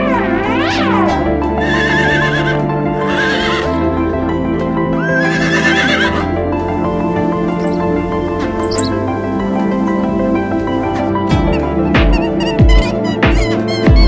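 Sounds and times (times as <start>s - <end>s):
horse whinnying: 0.0s - 3.8s, 5.0s - 6.3s
background music: 0.0s - 14.0s.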